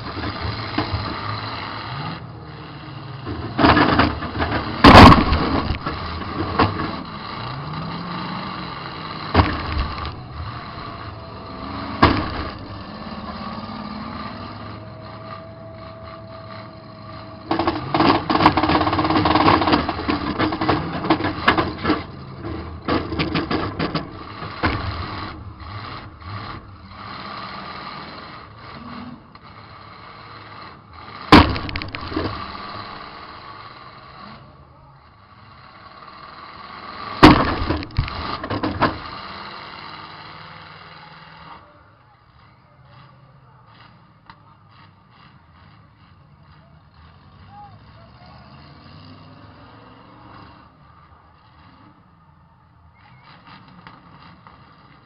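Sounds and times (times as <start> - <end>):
car engine revving: 0.0 - 41.8, 42.8 - 55.0
metal-on-metal crashes: 3.6 - 6.8, 37.2 - 38.8.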